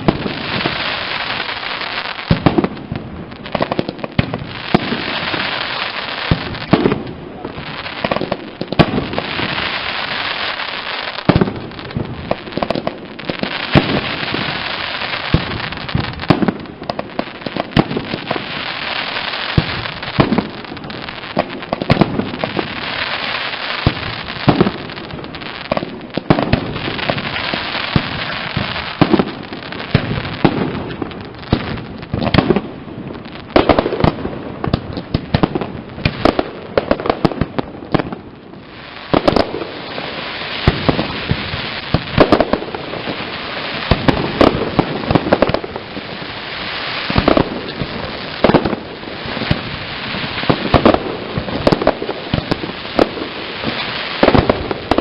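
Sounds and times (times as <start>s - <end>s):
dense fireworks crackle: 0.0s - 55.0s.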